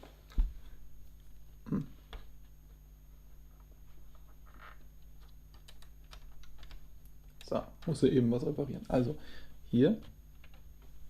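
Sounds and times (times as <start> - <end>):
person murmuring: 1.6 - 2.2.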